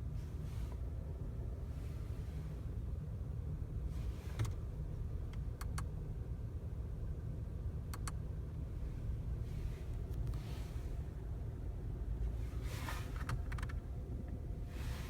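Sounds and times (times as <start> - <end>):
sharp engine clicks: 5.3 - 5.9, 7.9 - 8.2, 13.2 - 13.8.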